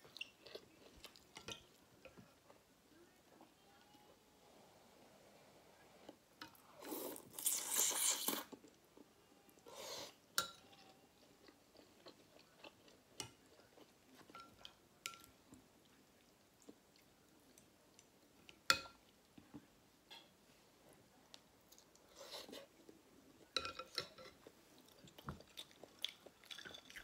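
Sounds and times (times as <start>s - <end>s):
close chewing of food: 0.0s - 2.6s, 10.7s - 14.4s, 24.2s - 27.0s.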